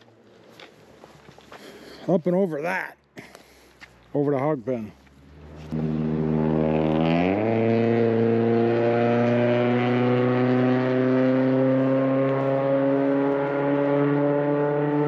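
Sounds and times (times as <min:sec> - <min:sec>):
loud car engine: 0:04.9 - 0:15.0.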